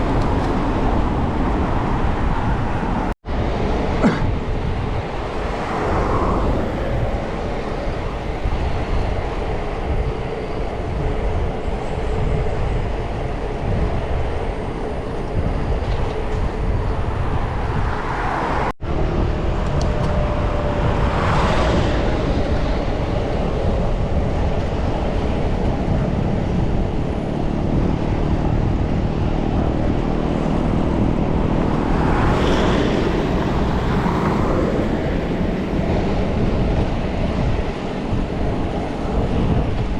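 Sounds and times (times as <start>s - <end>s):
vehicles passing: 0.0s - 39.9s
wind rushing over microphone: 0.0s - 39.9s.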